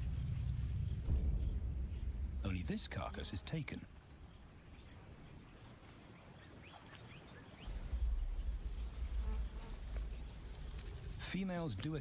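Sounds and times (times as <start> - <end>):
deep low rumble: 0.0 - 4.8, 7.6 - 11.8
high insect buzz: 7.6 - 11.2.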